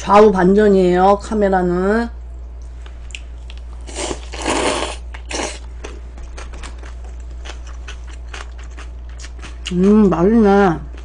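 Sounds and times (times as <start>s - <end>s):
steady low hum: 0.0s - 11.0s
food crunching and rustling: 2.6s - 11.0s.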